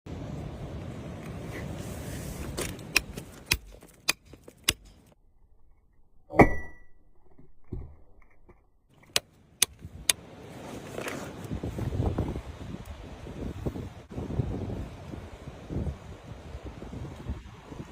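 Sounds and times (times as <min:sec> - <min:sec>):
wind noise on microphone: 0:09.6 - 0:10.2, 0:11.0 - 0:17.9.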